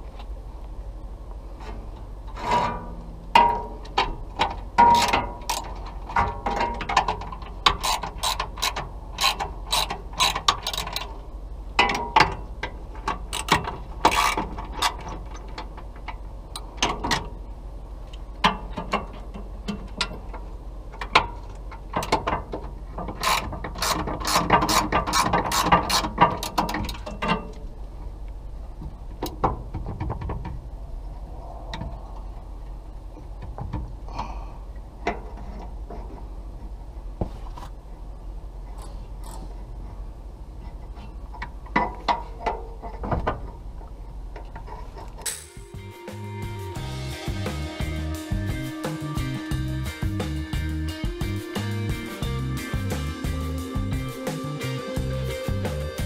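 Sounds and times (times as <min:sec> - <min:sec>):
ratchet wrench clicking: 0:07.6 - 0:11.1, 0:23.2 - 0:26.6.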